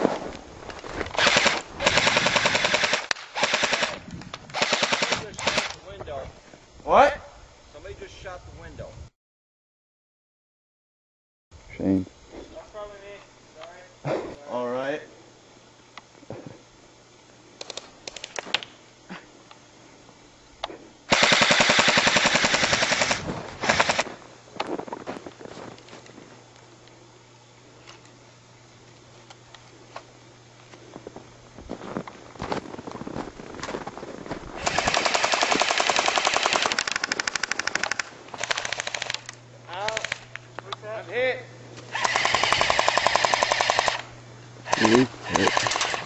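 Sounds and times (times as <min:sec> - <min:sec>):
airsoft guns firing bursts: 0:01.2 - 0:05.8, 0:21.1 - 0:24.1, 0:34.6 - 0:39.2, 0:39.8 - 0:40.3, 0:42.0 - 0:44.0, 0:44.7 - 0:46.0.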